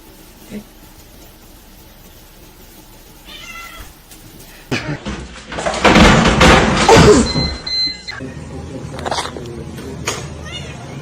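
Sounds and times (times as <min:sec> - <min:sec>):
cat meowing: 0:03.3 - 0:03.9.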